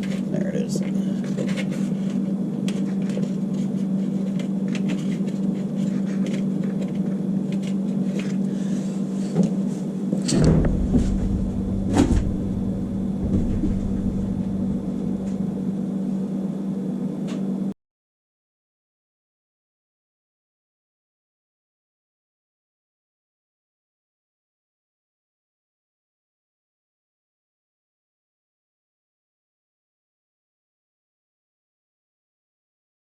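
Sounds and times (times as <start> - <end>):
steady mechanical hum: 0.0 - 17.8
loud knocks: 10.2 - 15.6
low rumble: 10.2 - 16.2.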